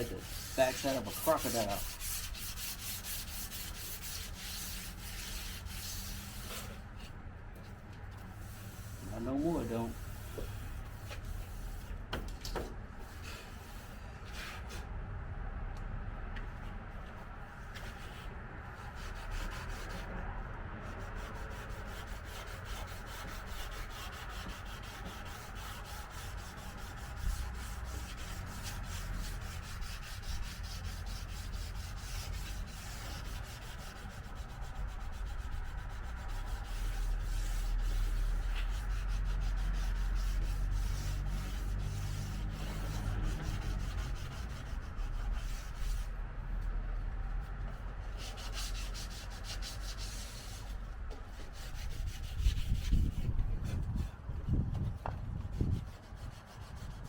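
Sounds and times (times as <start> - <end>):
sandpaper scraping painted metal: 0.0 - 7.1, 8.3 - 12.0, 20.8 - 46.1, 47.8 - 54.1, 54.9 - 57.0.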